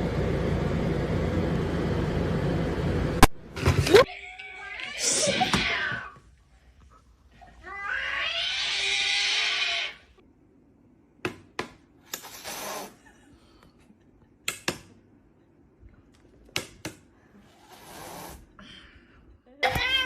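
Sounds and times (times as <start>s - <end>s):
cat yowling: 7.6s - 10.0s.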